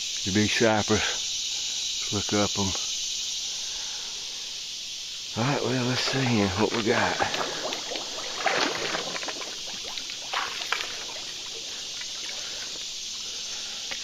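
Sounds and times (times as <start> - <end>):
creek water splashing: 5.4 - 14.0.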